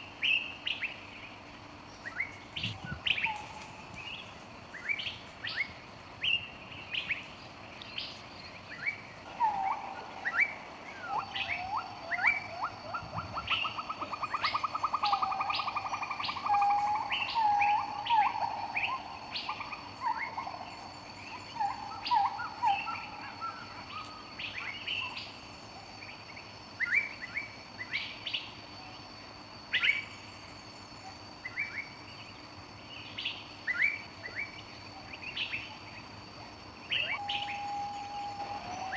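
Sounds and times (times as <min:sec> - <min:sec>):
birds chirping: 0:00.0 - 0:28.7, 0:29.8 - 0:38.9
lower-pitched bird calls with trill: 0:08.0 - 0:25.2, 0:36.9 - 0:38.9.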